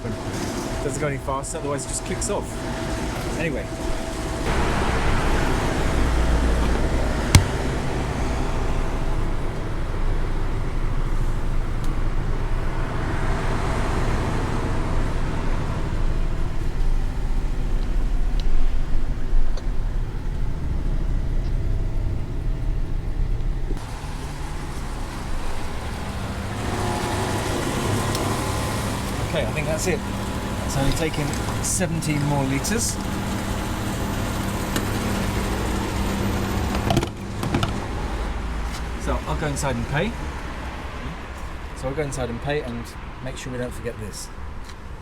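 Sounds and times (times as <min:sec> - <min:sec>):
low traffic rumble: 0:00.0 - 0:45.0
fuel nozzle click: 0:07.3 - 0:07.7.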